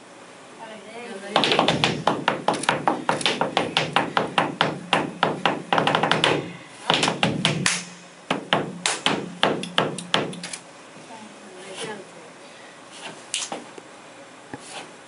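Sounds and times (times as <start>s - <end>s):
shoes striking wooden stage: 1.4s - 10.5s.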